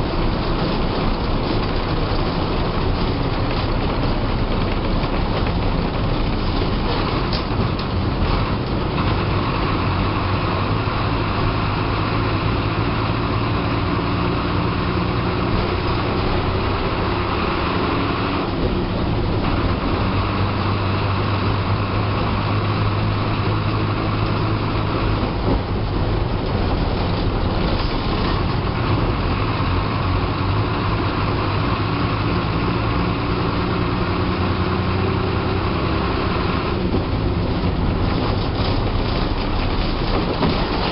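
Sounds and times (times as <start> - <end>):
bus engine running: 0.0 - 40.9
road noise: 0.0 - 40.9
rattling: 37.0 - 40.9.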